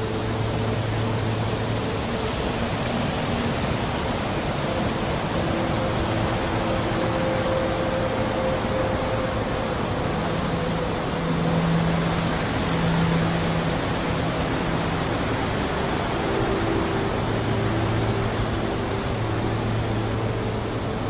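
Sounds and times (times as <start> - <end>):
storm wind and rain rushing: 0.0 - 21.0.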